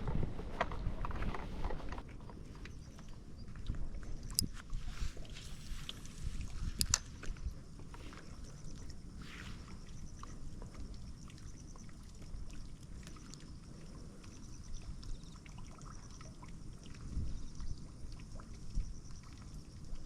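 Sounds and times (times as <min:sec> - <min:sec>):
wind buffeting microphone: 0:00.0 - 0:13.0, 0:16.5 - 0:20.0
water lapping along bank: 0:00.0 - 0:20.0
small clicks: 0:06.8 - 0:07.4.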